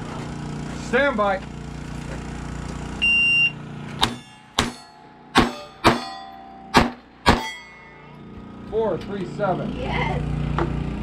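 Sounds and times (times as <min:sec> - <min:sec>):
shot timer beep: 0:03.0 - 0:04.2
pistol shots: 0:04.0 - 0:06.1, 0:06.7 - 0:07.5
steel targets ringing: 0:04.0 - 0:08.4.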